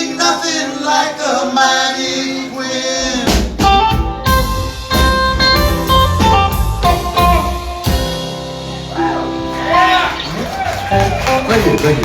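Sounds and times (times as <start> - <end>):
blues-rock band playing: 3.2 - 12.0.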